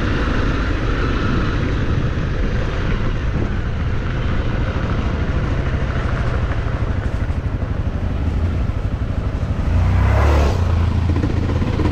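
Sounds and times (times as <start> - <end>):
off-road motorcycle engine revving: 4.0 - 11.9.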